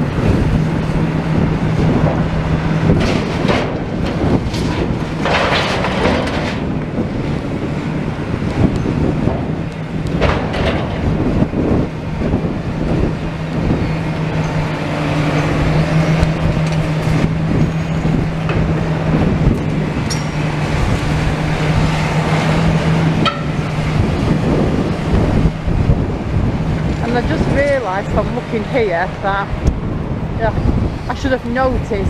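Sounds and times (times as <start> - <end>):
excavator diesel engine: 0.0 - 32.0
rubble knocking and clattering: 2.9 - 6.9, 10.1 - 11.2.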